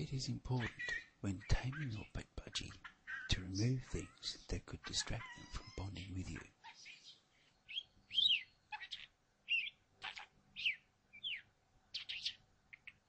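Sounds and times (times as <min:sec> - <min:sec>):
budgerigar chirping: 0:00.6 - 0:13.0.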